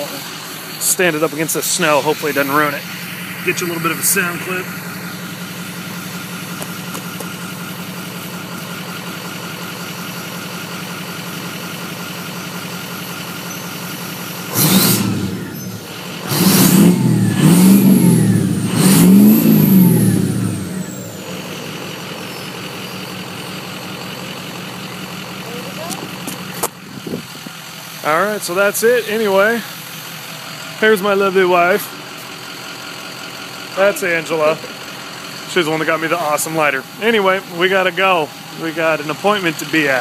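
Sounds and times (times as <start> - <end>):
diesel engine idling and revving: 0.0 - 40.0
turbo whistle winding down: 14.5 - 21.1.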